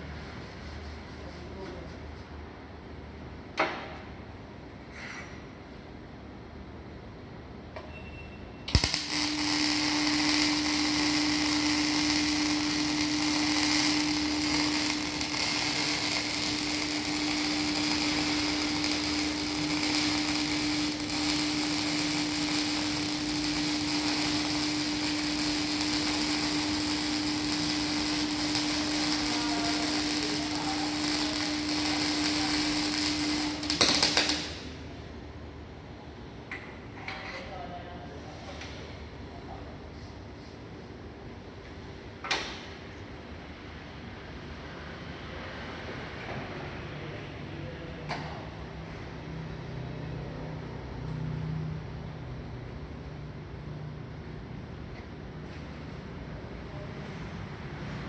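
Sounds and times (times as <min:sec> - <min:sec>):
arc welding crackling hiss: 0:08.7 - 0:34.8
welding arc striking crack: 0:08.7 - 0:34.8
low hum: 0:08.7 - 0:35.1.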